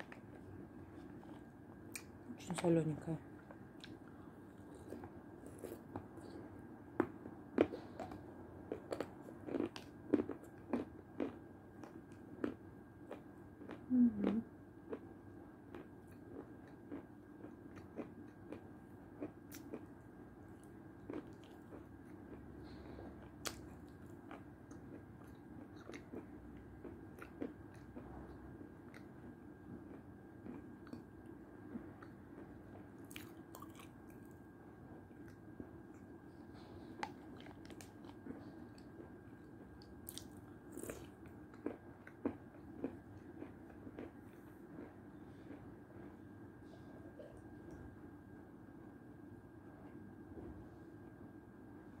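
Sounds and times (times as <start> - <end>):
chewing and crunching: 0.0 - 2.2, 3.4 - 47.8
voice humming: 13.9 - 14.4.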